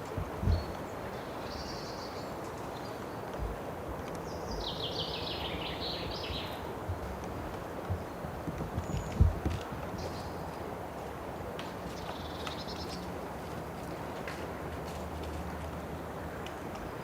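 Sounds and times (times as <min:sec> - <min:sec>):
outdoor background hiss: 0:00.0 - 0:17.0
faint low thuds: 0:00.2 - 0:00.7, 0:06.8 - 0:09.9.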